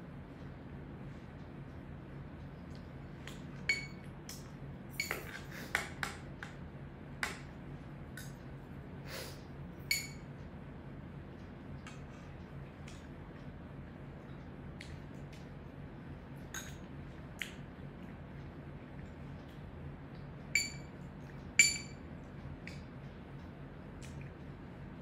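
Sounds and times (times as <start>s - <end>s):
steady low hum: 0.0s - 25.0s
spoons clinking on plates: 9.9s - 10.2s, 21.6s - 22.0s.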